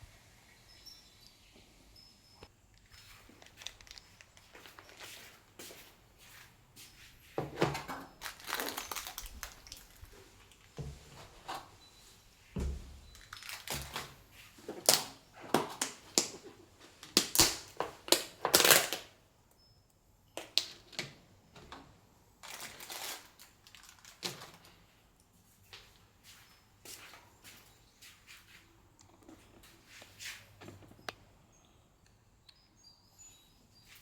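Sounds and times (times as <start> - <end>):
clicks taps and crinkling: 2.4 - 5.5, 7.4 - 11.7, 12.6 - 26.0, 28.9 - 32.7.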